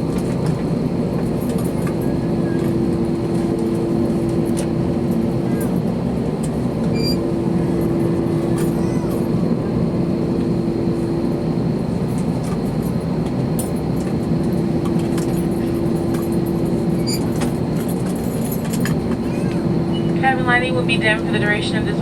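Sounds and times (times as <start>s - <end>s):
aircraft cabin engine rush: 0.0s - 22.0s
steady hum: 19.5s - 22.0s.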